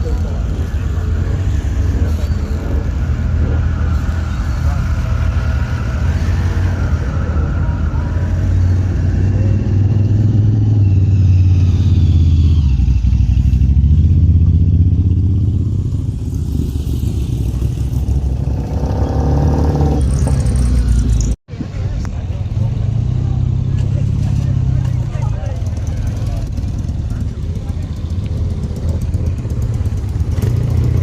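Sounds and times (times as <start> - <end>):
motorcycle engine running: 22.4 - 31.0.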